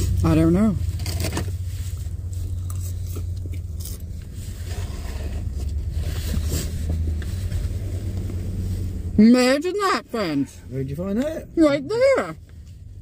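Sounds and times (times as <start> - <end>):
idling truck engine hum: 0.0 - 13.0
soft chewing: 1.9 - 4.7.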